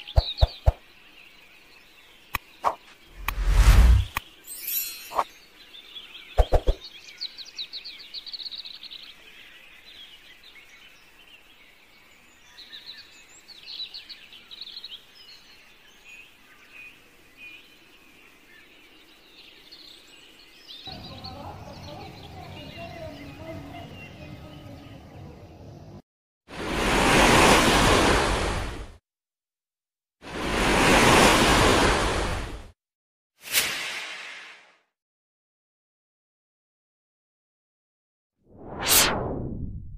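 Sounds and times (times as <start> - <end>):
small birds chirping: 0.0 - 3.4, 4.0 - 26.0.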